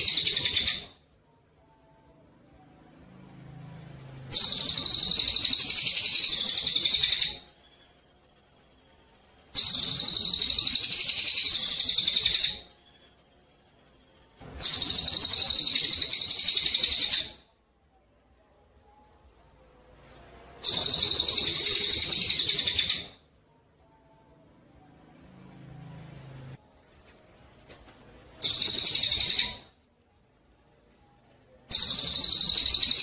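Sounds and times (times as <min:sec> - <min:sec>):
songbird high-pitched trill: 0:00.0 - 0:01.0, 0:04.3 - 0:17.5, 0:20.6 - 0:23.3, 0:26.6 - 0:29.8, 0:30.8 - 0:33.0.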